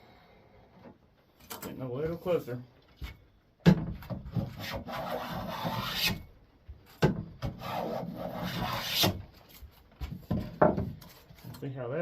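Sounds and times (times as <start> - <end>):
hand plane shaving wood: 4.5 - 6.2, 7.5 - 9.2.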